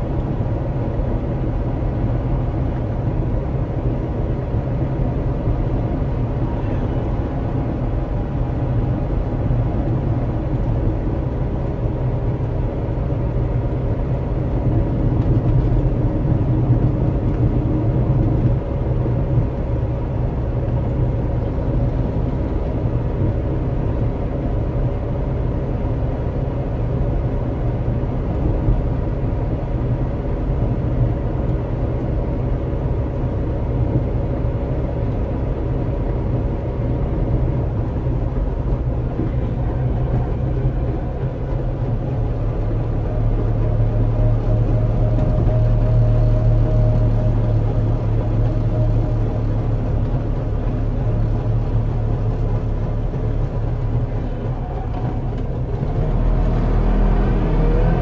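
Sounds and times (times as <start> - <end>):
two-stroke car engine running: 35.3 - 56.0.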